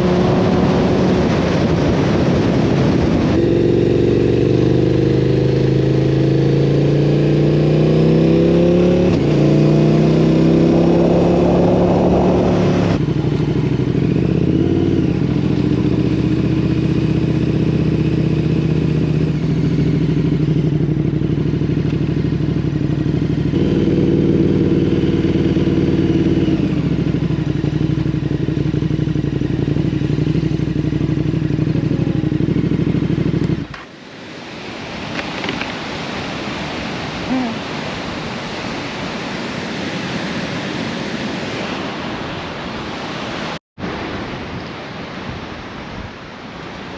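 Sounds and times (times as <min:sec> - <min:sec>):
motorcycle engine accelerating: 0:00.0 - 0:34.4.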